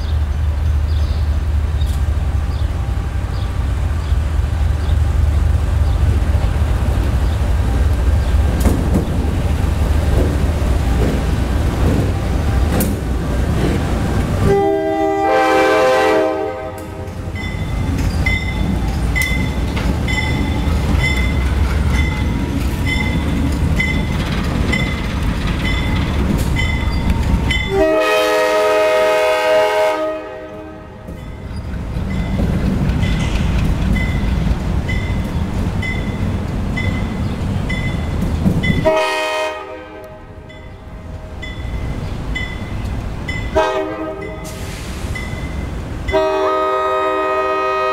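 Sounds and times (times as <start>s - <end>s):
locomotive engine rumbling: 0.0s - 47.9s
locomotive horn blasts: 14.4s - 17.2s, 27.6s - 31.1s, 38.8s - 40.5s, 43.5s - 44.6s, 46.1s - 47.9s
bell ringing: 17.4s - 22.3s.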